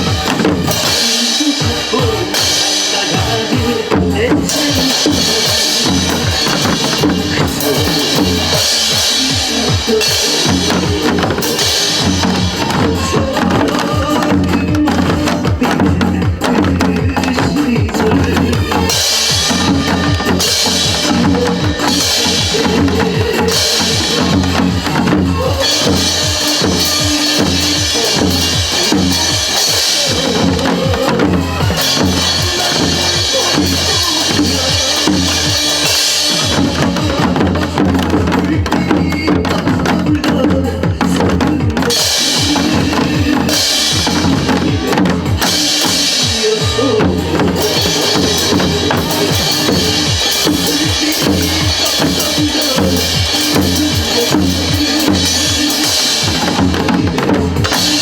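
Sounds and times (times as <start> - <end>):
group of drums beating: 0.0 - 58.0
recorded song: 0.0 - 58.0.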